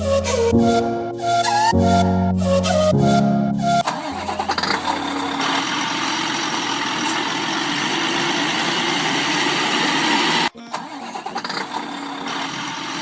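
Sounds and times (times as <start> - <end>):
truck engine running: 3.6 - 13.0.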